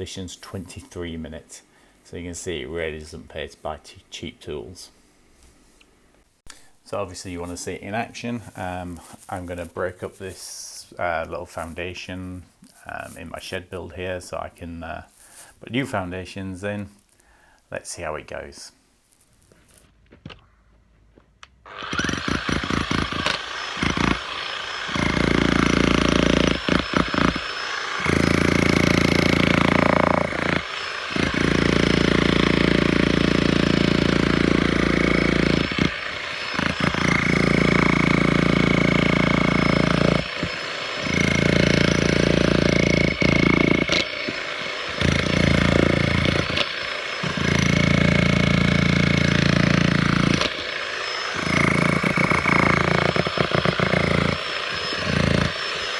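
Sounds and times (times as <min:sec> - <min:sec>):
demolition hammer on concrete: 0:21.8 - 0:55.9.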